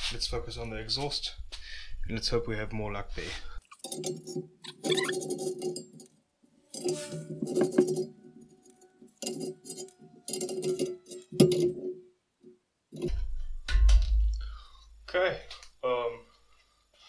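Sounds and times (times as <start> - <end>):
hand tools clinking on metal: 3.6 - 12.0.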